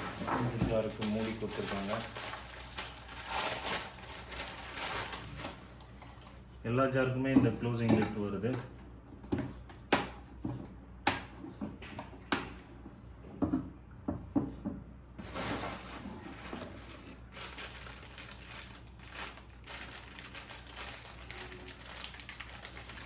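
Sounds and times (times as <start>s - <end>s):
packaging rustling: 0.0s - 5.8s, 15.2s - 23.0s.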